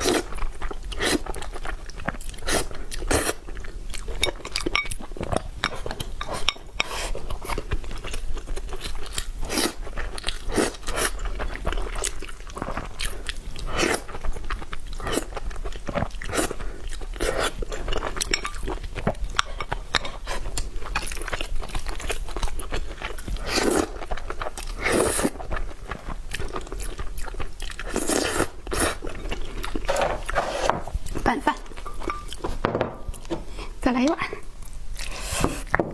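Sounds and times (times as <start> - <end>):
chewing crunchy food: 0.0 - 32.5.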